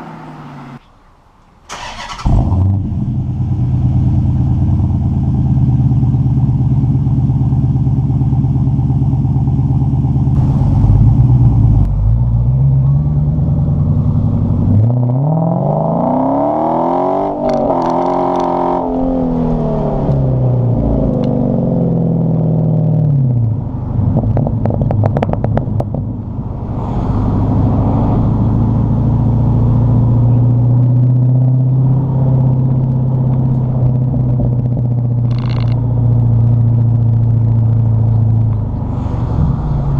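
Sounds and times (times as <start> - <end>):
car engine revving through exhaust: 8.8 - 39.9.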